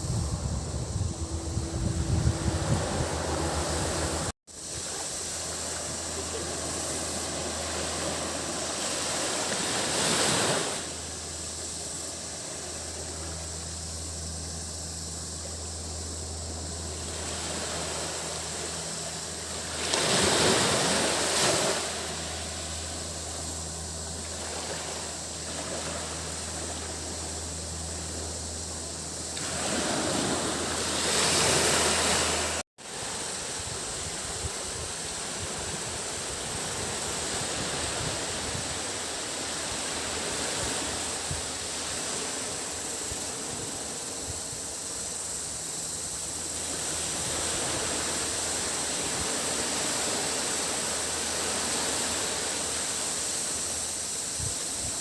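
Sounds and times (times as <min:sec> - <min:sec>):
low hum: 0:00.0 - 0:09.5, 0:10.7 - 0:32.6
surf breaking on a beach: 0:00.0 - 0:13.4, 0:16.8 - 0:27.4, 0:29.3 - 0:45.0, 0:46.2 - 0:55.0
cicadas hissing: 0:00.0 - 0:55.0.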